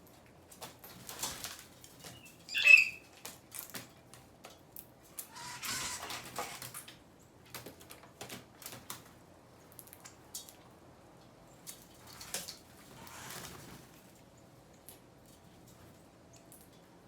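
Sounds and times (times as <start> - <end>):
wingbeats flurry: 5.2 - 6.7, 12.8 - 14.0.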